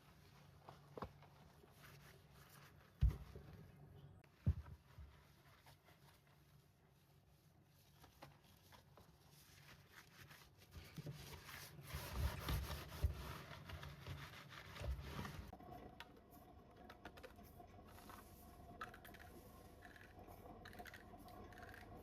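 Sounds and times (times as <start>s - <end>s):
rubbing and rustling: 0.0s - 15.6s.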